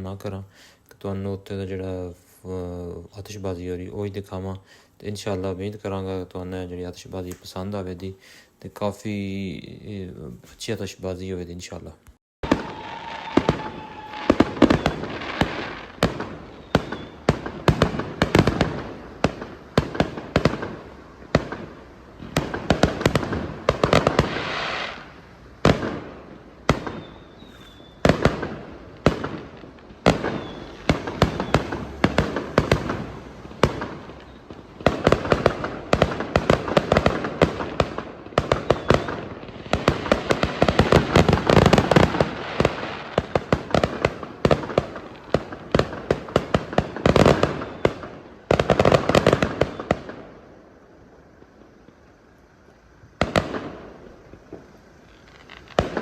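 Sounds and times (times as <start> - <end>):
faint firework whistle: 12.4 - 15.9, 16.5 - 17.3, 26.7 - 28.3, 30.1 - 34.6, 38.5 - 39.3, 46.9 - 48.3, 49.4 - 50.3
fireworks cracks and bangs: 12.4 - 56.0.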